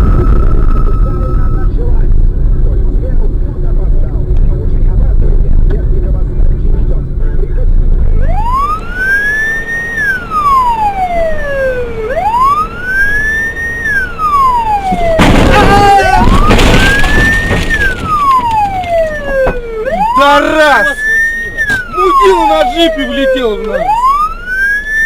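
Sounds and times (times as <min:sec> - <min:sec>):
siren wailing: 0:00.0 - 0:01.7, 0:08.1 - 0:25.0.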